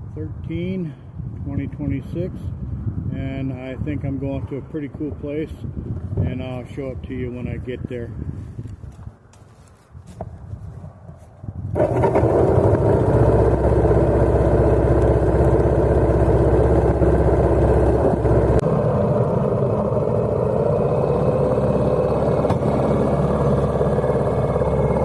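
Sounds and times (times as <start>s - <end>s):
motorcycle engine running: 11.8s - 25.0s.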